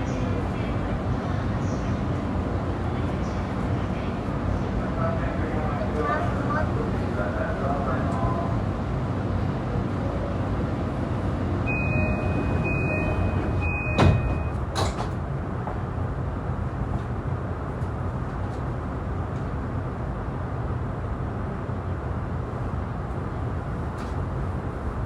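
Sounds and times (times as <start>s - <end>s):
train car rumble: 0.0s - 25.0s
train door closing chime: 11.7s - 15.0s
sliding doors thudding shut: 13.7s - 15.2s.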